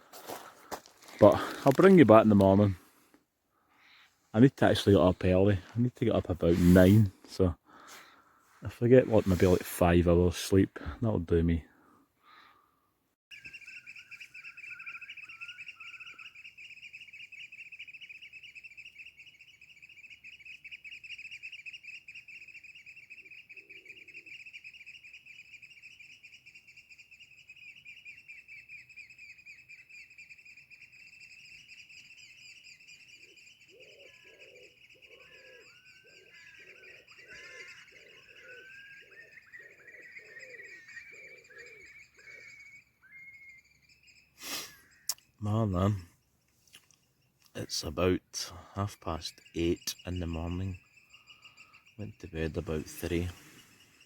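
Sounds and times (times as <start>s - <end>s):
low bird call: 13.3s - 46.1s, 46.8s - 54.0s
bird trilling song: 13.3s - 54.0s.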